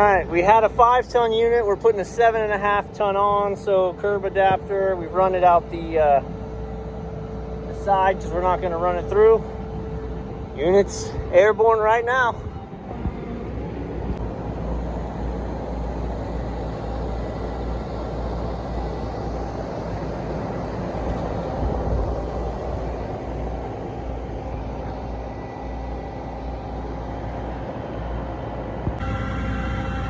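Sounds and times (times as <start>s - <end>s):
crane engine rumbling: 0.0s - 30.0s.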